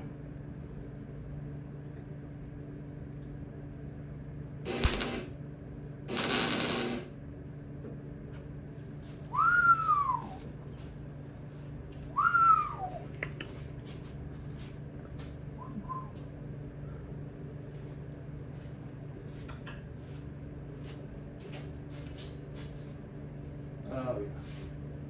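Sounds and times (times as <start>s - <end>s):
loud hiss bursts: 4.7s - 5.3s, 6.1s - 7.1s
steady low hum: 4.7s - 5.4s, 6.1s - 7.1s.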